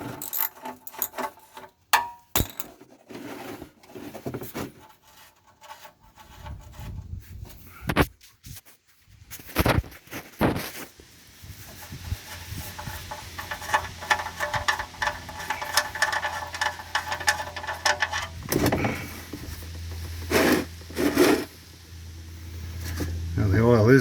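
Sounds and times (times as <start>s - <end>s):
low steady hum: 11.4s - 24.0s.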